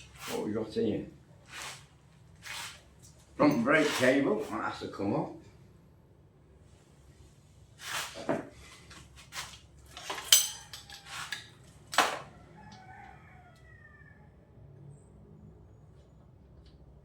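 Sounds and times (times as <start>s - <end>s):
metal tools clinking and knocking: 9.9s - 11.5s.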